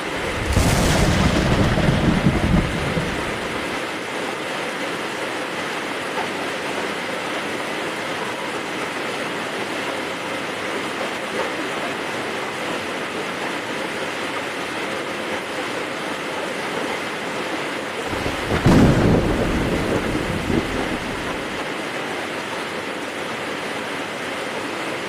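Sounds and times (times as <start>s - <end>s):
thunderclap rumbling: 0.0s - 3.8s, 18.1s - 21.6s
heavy rain falling: 0.0s - 25.0s.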